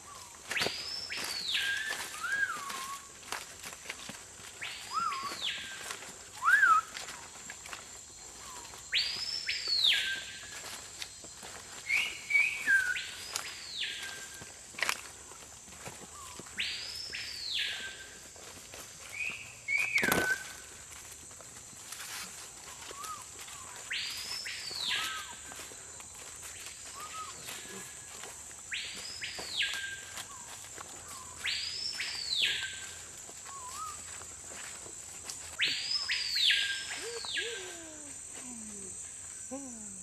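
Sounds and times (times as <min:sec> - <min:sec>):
bird whistled call: 0:00.5 - 0:03.1, 0:04.6 - 0:07.0, 0:11.9 - 0:14.4, 0:19.1 - 0:20.6, 0:35.6 - 0:37.8
high-pitched insect drone: 0:21.9 - 0:40.0.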